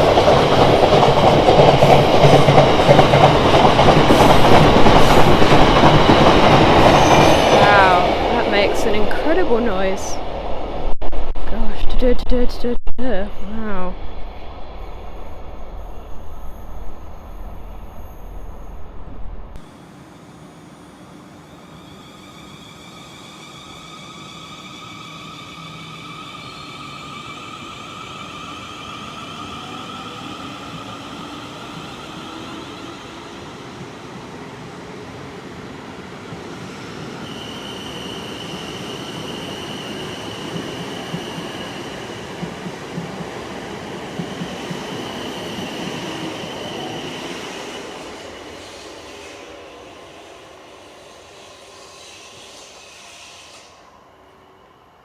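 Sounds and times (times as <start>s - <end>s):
train wheel squeal: 0.0s - 8.1s, 14.3s - 34.0s, 36.4s - 55.0s
train rolling on rails: 0.0s - 12.2s, 13.4s - 55.0s
deep low rumble: 10.2s - 19.6s.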